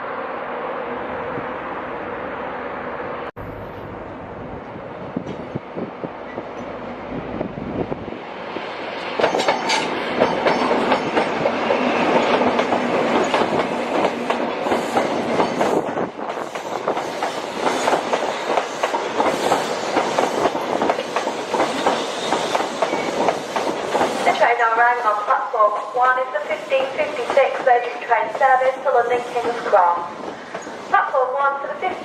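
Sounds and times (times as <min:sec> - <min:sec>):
train wheels clicking on rails: 0:09.0 - 0:24.7, 0:25.6 - 0:31.0.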